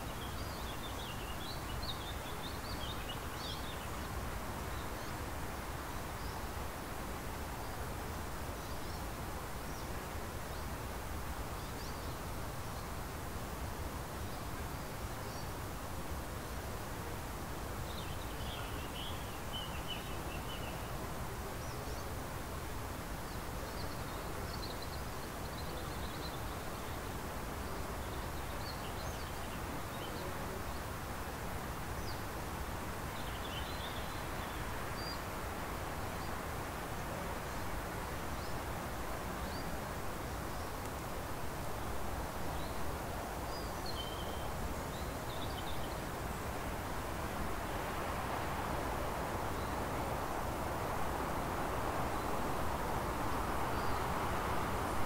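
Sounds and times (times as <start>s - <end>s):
small birds chirping: 31.9s - 55.0s.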